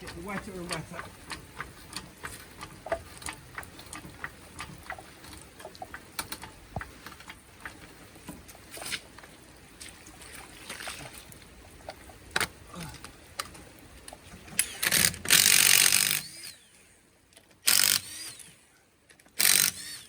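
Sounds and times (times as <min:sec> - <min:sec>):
drips and taps: 0:00.0 - 0:14.2
rain falling steadily: 0:00.0 - 0:14.6.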